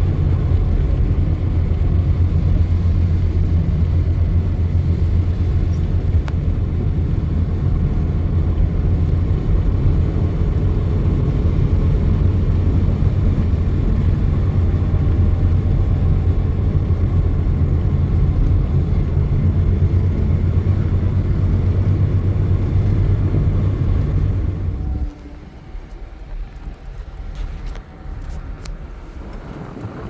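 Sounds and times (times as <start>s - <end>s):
low rumble: 0.0s - 30.0s
faint clicks: 25.0s - 30.0s.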